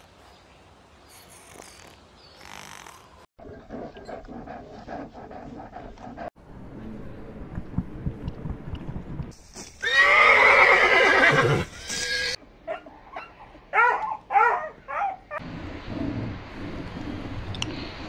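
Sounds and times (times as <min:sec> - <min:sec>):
horse whinnying: 0:09.8 - 0:12.4.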